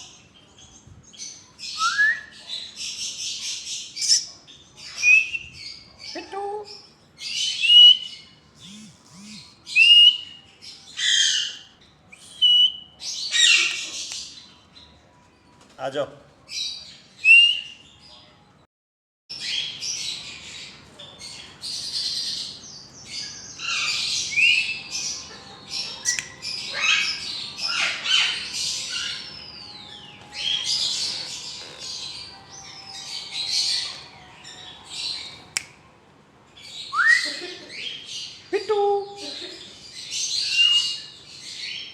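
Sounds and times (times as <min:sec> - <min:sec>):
parrots squawking: 0:23.6 - 0:35.5.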